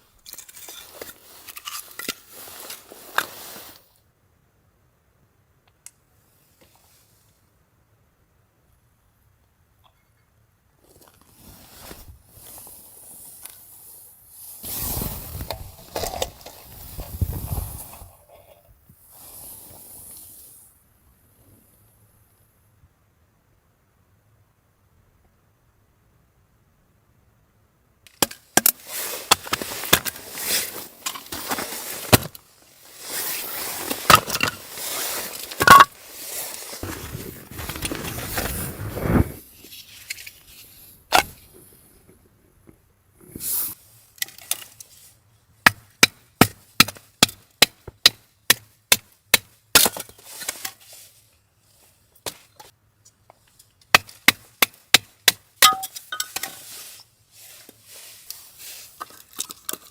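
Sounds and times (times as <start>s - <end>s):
handling rustle: 0.0s - 4.0s, 10.8s - 13.7s, 14.5s - 18.8s, 28.1s - 41.7s, 49.8s - 53.9s, 55.6s - 59.9s.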